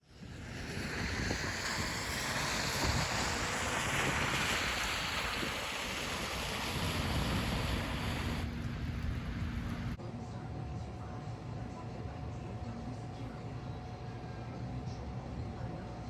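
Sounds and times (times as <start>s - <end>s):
wind buffeting microphone: 0.0s - 10.0s
wind rushing: 0.0s - 10.0s.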